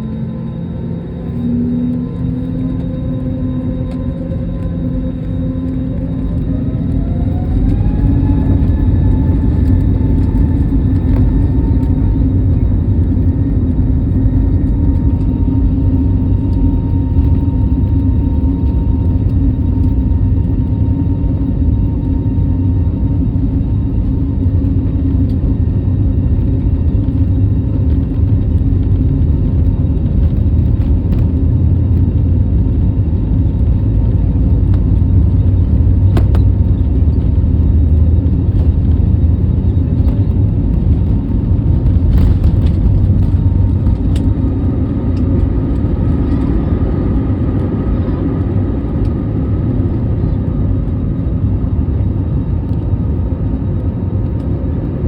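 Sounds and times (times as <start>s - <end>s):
faint high whine: 0.0s - 29.4s
jet engine cabin rumble: 0.0s - 55.0s.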